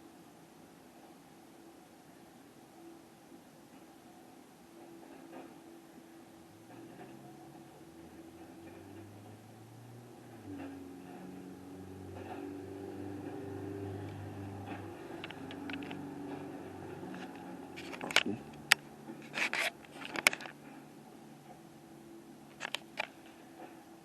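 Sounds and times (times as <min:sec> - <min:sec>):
engine running: 0:06.7 - 0:20.8
sharp clicks and knocks: 0:13.2 - 0:20.6, 0:22.6 - 0:23.8.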